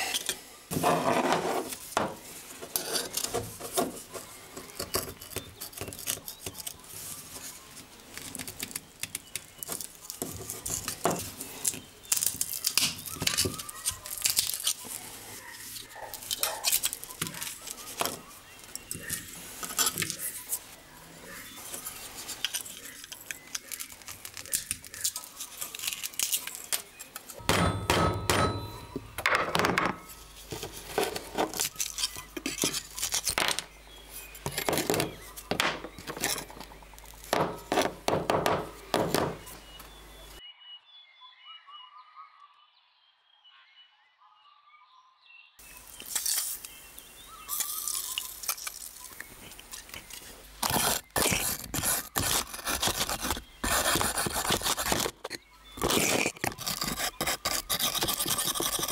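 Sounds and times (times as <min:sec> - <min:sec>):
pieces breaking off: 0:11.6 - 0:14.9, 0:47.5 - 0:53.4.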